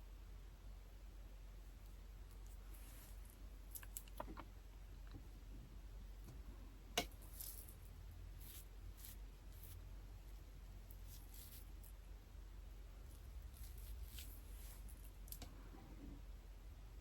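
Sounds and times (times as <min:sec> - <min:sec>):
soft rustles: 0:02.3 - 0:04.5, 0:10.9 - 0:12.0, 0:13.1 - 0:16.2.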